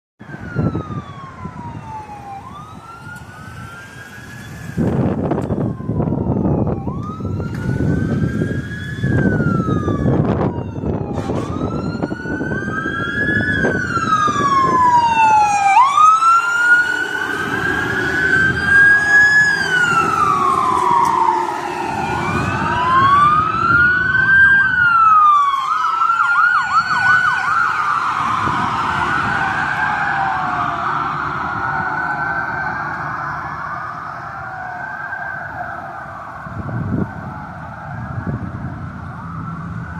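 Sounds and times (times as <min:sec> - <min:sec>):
emergency sirens wailing: 0:00.2 - 0:39.9
heavy vehicle rumble: 0:00.3 - 0:25.6, 0:26.4 - 0:39.9.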